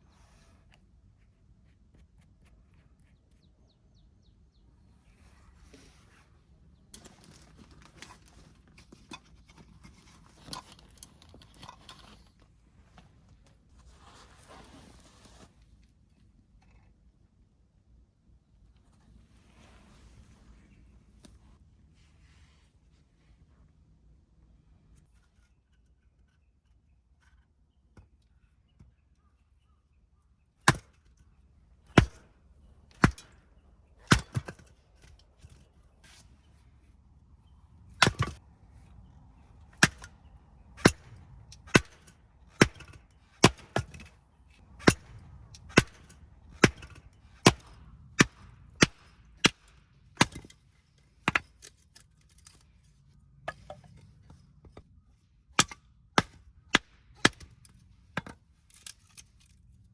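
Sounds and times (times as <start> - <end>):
sharp hammering or chopping blows: 31.9 - 32.3, 32.9 - 33.4, 34.0 - 34.6, 39.8 - 40.2, 40.8 - 44.1, 44.8 - 50.4.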